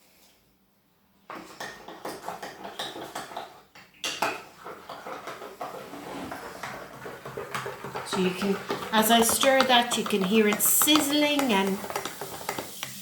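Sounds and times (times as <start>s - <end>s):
spoon stirring in a cup: 1.3s - 13.0s
spoon knocking on cup: 6.7s - 13.0s.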